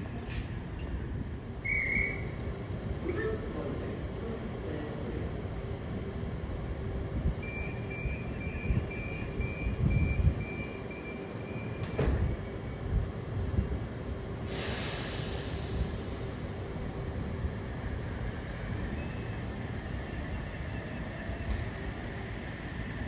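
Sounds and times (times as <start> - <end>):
electric train rumbling: 0.0 - 23.0
door-closing warning beeps: 7.4 - 12.6
train doors shutting clunk: 11.3 - 12.5
air hiss: 14.2 - 16.8.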